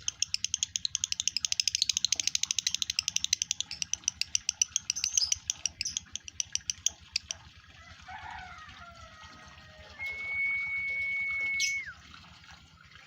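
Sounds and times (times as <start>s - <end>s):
lovebird chattering high chirps: 0.0s - 7.3s.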